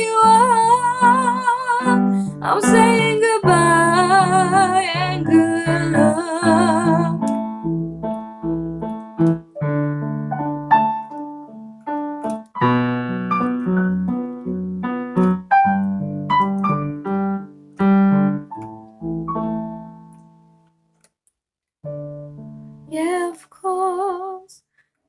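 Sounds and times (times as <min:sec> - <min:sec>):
piano chords and melody: 0:00.0 - 0:21.1, 0:21.8 - 0:23.4.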